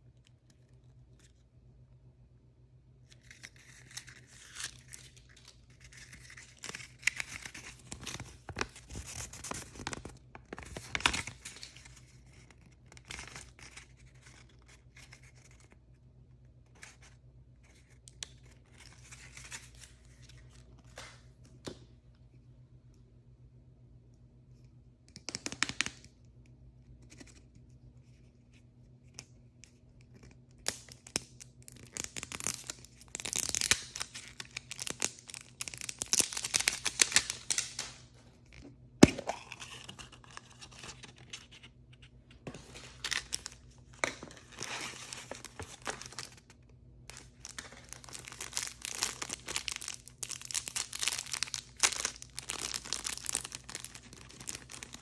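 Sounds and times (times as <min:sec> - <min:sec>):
plastic packaging crinkling: 0:31.0 - 0:38.1, 0:42.5 - 0:55.0.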